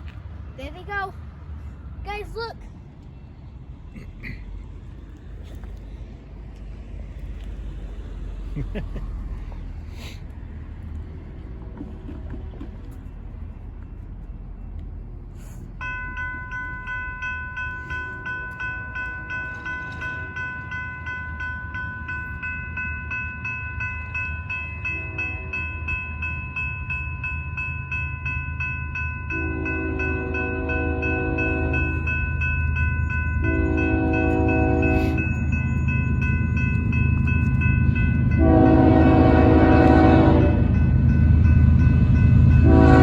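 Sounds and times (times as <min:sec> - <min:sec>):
train rumble: 0:00.0 - 0:43.0
railroad crossing bell ringing: 0:12.8 - 0:43.0
train horn blasts: 0:24.9 - 0:25.8, 0:29.3 - 0:32.0, 0:33.4 - 0:35.4, 0:38.4 - 0:40.9, 0:42.6 - 0:43.0.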